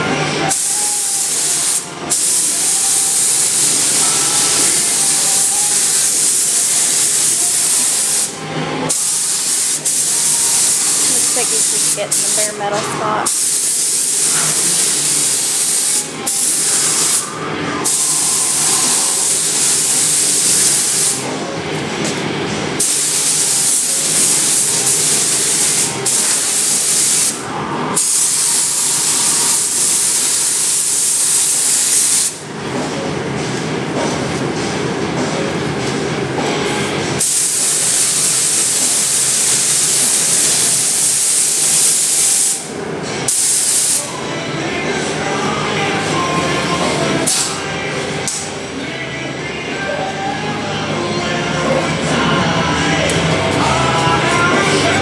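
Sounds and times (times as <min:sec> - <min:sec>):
paint spray gun hissing: 0:00.5 - 0:21.2, 0:22.8 - 0:27.4, 0:28.0 - 0:32.4, 0:37.2 - 0:42.7, 0:43.3 - 0:44.1.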